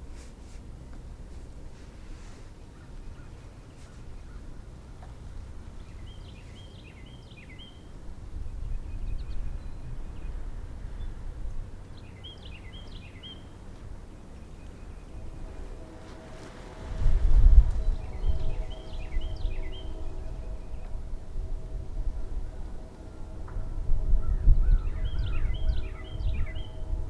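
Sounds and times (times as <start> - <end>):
steady low rumble: 13.8 - 27.0
songbird chirping: 17.7 - 21.7.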